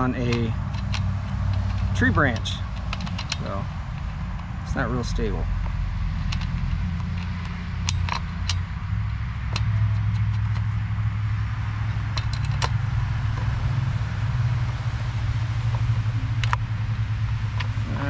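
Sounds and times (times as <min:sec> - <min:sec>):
small metallic clicks and clinks: 0:00.0 - 0:10.9, 0:11.8 - 0:13.8, 0:15.6 - 0:16.7
engine idling: 0:00.0 - 0:18.0.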